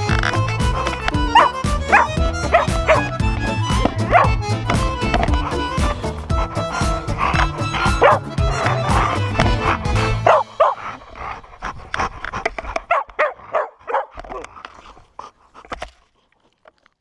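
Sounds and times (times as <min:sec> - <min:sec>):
background music: 0:00.0 - 0:12.8
dog whining and yipping: 0:00.3 - 0:11.0.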